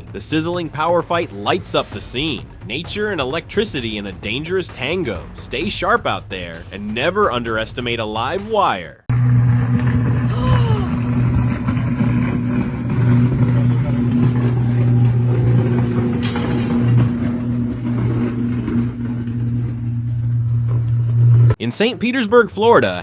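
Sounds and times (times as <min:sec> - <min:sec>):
electrical crackle: 0:09.1 - 0:21.6.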